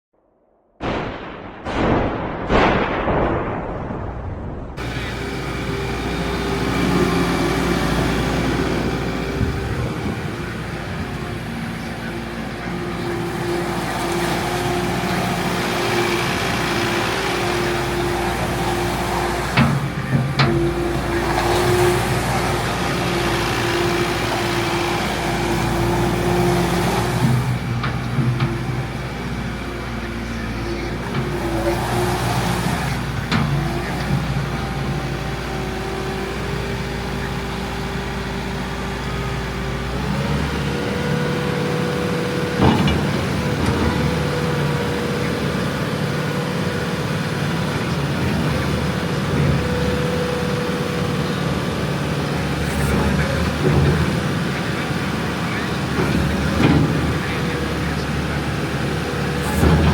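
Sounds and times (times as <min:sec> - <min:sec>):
diesel engine running: 0:04.7 - 0:59.9.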